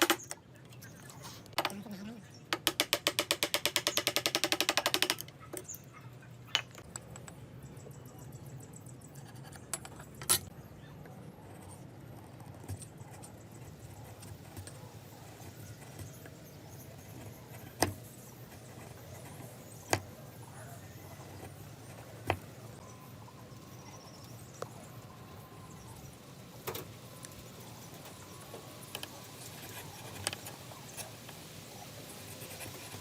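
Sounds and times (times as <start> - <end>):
sharp taps and clicks: 2.5 - 5.7.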